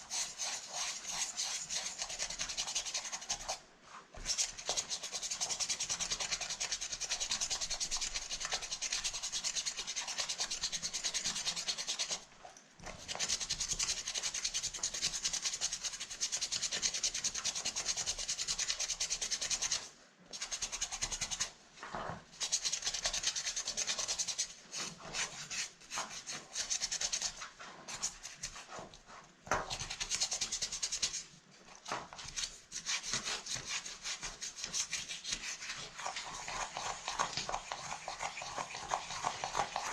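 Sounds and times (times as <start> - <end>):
brush scrubbing a handbag: 0.0 - 3.6, 4.2 - 12.2, 22.4 - 31.2, 32.2 - 39.9.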